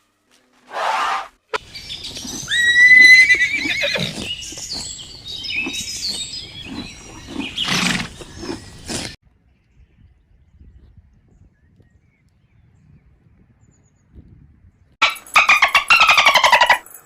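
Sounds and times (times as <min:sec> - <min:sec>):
horse neighing: 0:00.7 - 0:09.2.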